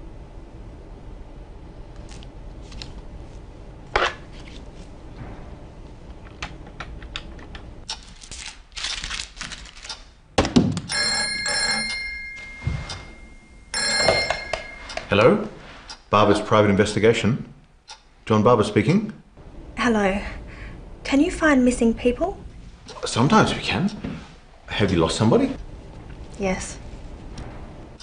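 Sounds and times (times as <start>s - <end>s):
desk telephone ringing: 10.9s - 15.5s.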